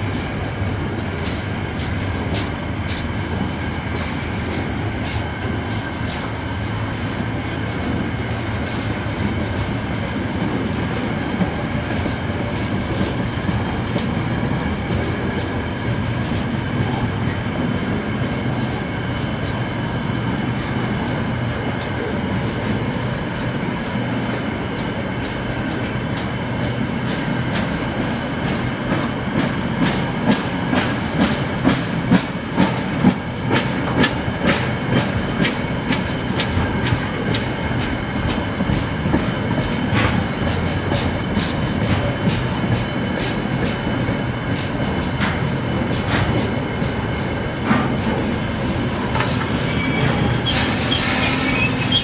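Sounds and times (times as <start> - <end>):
freight train rumbling past: 0.0 - 52.0
wheels clacking over rail joints: 49.0 - 52.0.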